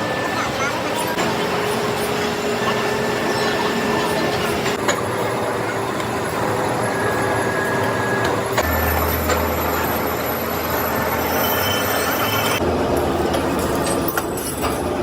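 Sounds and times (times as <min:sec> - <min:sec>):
machinery running: 0:00.0 - 0:14.9
low hum: 0:08.6 - 0:12.7.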